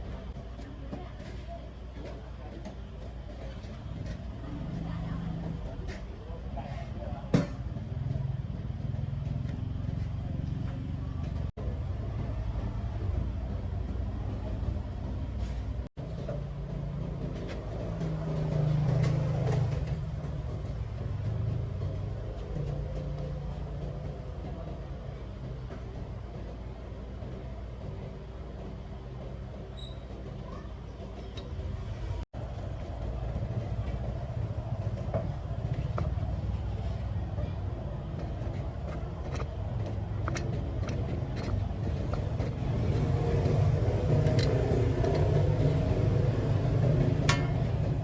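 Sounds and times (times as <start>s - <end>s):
small two-stroke engine running: 39.8s - 48.0s.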